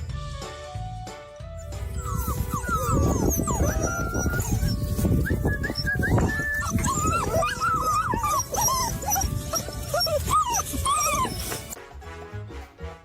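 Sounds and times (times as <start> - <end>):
background music: 0.0 - 13.0
dog whining: 1.6 - 11.8.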